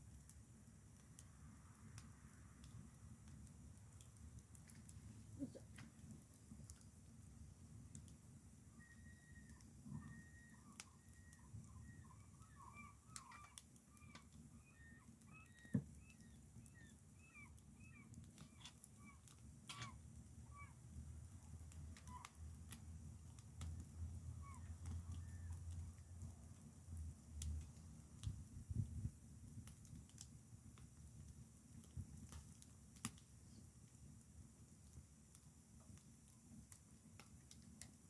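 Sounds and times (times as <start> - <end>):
faint clicks: 8.8 - 20.7, 21.4 - 26.3
small birds chirping: 8.8 - 22.4, 23.3 - 26.0, 33.3 - 33.8.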